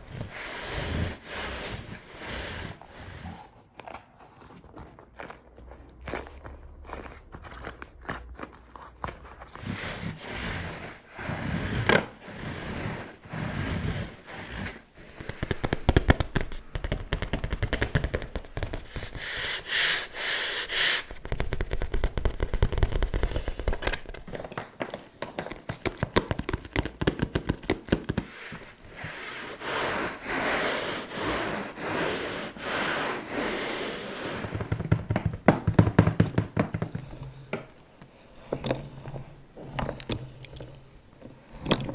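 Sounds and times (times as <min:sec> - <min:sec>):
slow scratching: 0:00.0 - 0:24.4, 0:25.7 - 0:35.5
fingers tapping on surfaces: 0:15.2 - 0:19.2, 0:24.5 - 0:28.3, 0:34.5 - 0:37.7.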